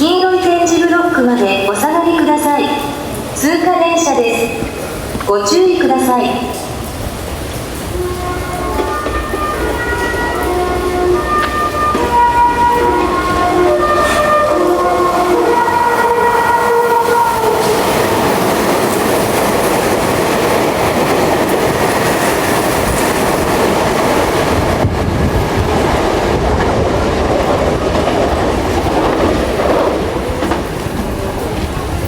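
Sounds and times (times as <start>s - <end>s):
electric train passing: 0.0s - 32.0s
train horn melody: 7.8s - 18.4s.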